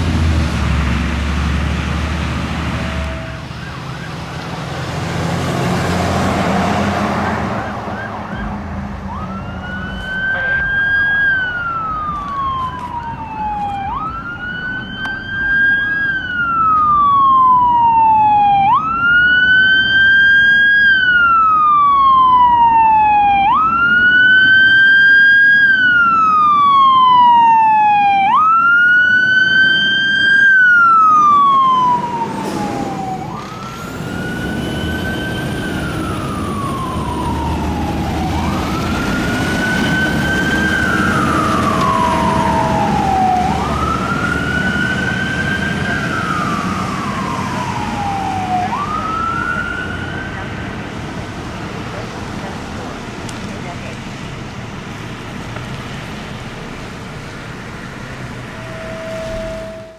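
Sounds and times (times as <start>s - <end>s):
heavy engine rumble: 0.0s - 17.8s, 30.6s - 59.9s
fire engine siren wailing: 0.0s - 53.4s, 54.8s - 59.9s
faint higher siren: 2.2s - 51.0s, 57.4s - 59.9s.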